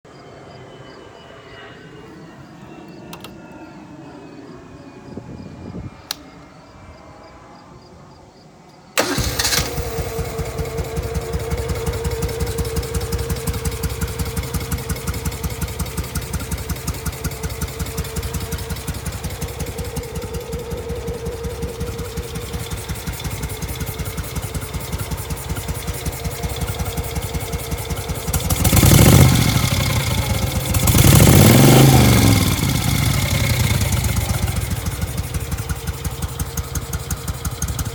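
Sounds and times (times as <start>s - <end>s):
engine revving: 9.0s - 37.9s
motorcycle engine starting and idling: 9.0s - 37.9s.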